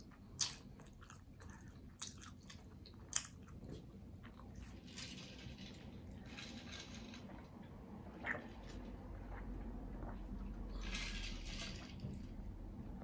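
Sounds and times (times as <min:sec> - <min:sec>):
person chewing food: 0:00.0 - 0:04.9.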